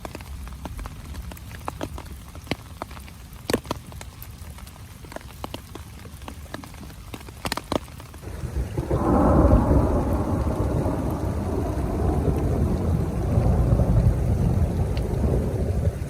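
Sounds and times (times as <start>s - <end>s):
rain falling on a tent: 0.0s - 16.0s
raindrops clicking: 0.0s - 16.0s
thunder rumbling: 8.2s - 16.0s.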